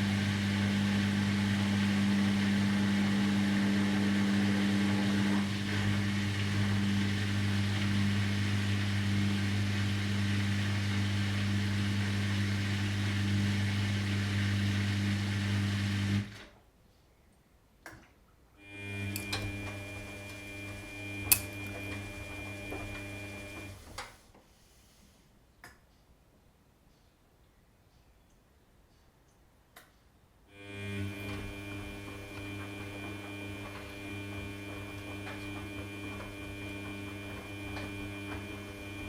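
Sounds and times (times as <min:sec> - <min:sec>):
washing machine motor humming: 0:00.0 - 0:16.4, 0:18.6 - 0:24.1, 0:30.6 - 0:39.0
washing machine clicks: 0:31.2 - 0:39.0.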